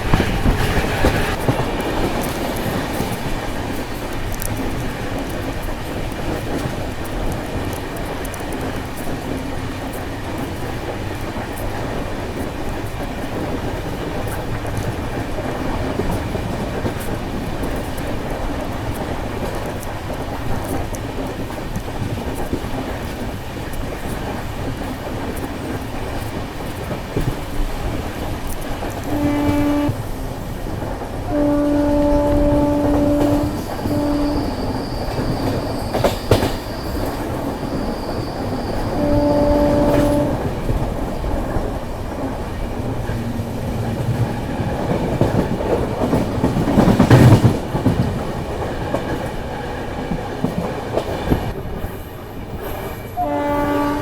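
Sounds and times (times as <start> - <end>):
train wheels clattering over rails: 0.0 - 54.0
locomotive horn blasts: 29.0 - 30.0, 31.3 - 34.6, 38.9 - 40.5, 53.2 - 54.0.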